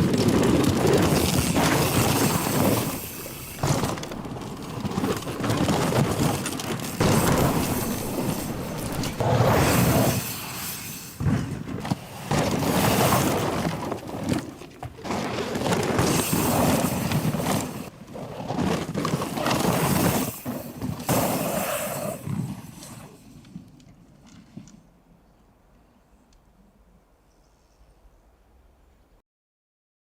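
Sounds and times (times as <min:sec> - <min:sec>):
bike frame and chain rattling: 0:00.0 - 0:10.8
tyre noise rushing: 0:00.0 - 0:23.0
impact knocks: 0:01.5 - 0:09.9.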